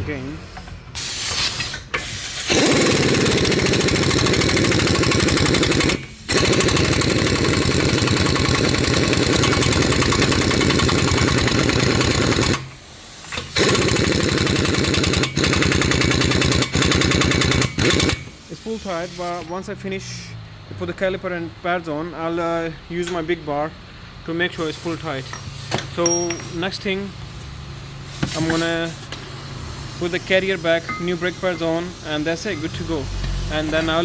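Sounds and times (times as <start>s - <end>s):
impact wrench hammering: 2.5s - 18.4s, 25.3s - 26.7s, 30.8s - 31.8s.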